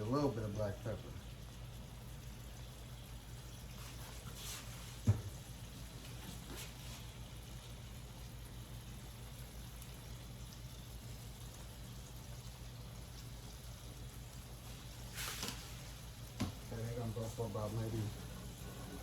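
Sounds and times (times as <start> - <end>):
food sizzling on stovetop: 0.0 - 19.0.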